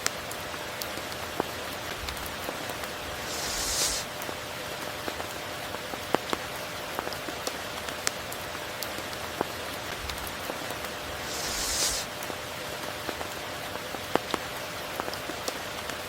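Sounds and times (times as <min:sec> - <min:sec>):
rain hissing: 0:01.9 - 0:04.6, 0:09.9 - 0:12.6.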